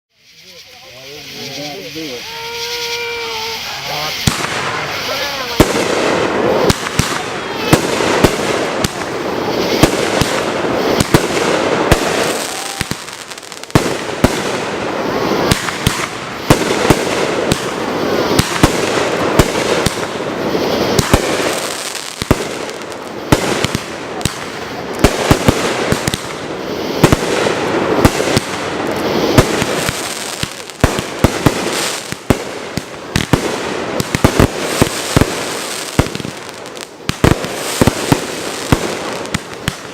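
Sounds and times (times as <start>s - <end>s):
crackle and hiss of shells: 0.1s - 5.7s
fireworks bangs: 0.2s - 39.9s.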